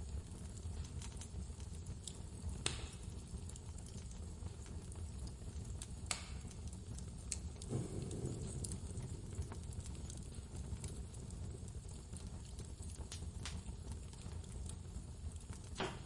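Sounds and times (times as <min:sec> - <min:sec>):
wood fire crackling: 0:00.0 - 0:16.0
sharp pops: 0:06.1 - 0:06.5, 0:07.6 - 0:10.4
dull thud: 0:07.7 - 0:09.6
blizzard wind rumble: 0:07.7 - 0:11.8.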